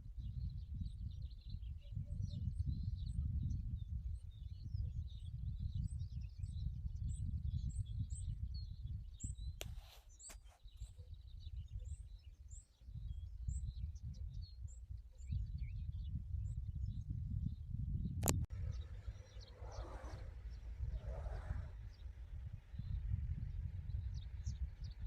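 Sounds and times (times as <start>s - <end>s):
low rumbling noise: 18.4s - 25.0s
small birds chirping: 18.5s - 25.0s
brief hiss: 18.6s - 21.9s.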